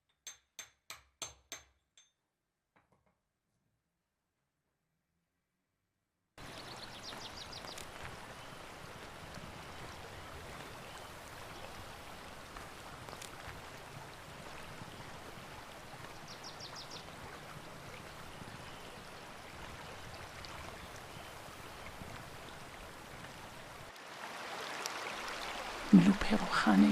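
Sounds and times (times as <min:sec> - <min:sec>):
running water rushing: 0:06.4 - 0:26.9.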